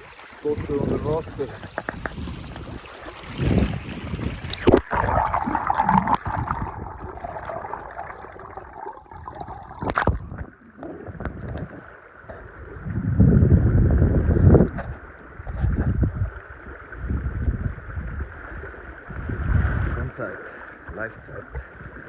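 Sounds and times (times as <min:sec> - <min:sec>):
muffled underwater river rushing: 0:00.0 - 0:22.0
low rumbling: 0:03.4 - 0:11.8.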